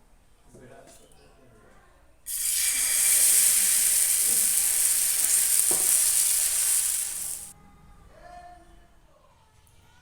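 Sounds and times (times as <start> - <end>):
food sizzling in hot oil: 2.3 - 7.5.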